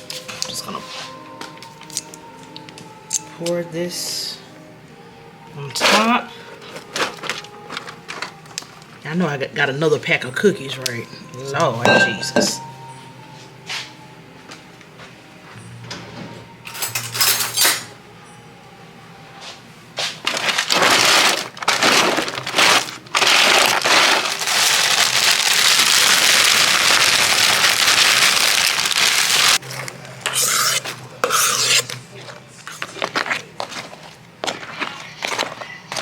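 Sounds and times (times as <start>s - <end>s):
kitchenware knocks: 11.9s - 12.7s
plastic packaging crinkling: 20.2s - 29.6s.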